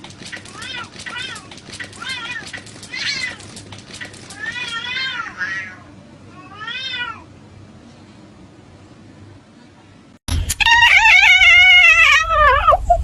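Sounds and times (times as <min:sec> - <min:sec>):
cat meowing: 0:10.6 - 0:12.9.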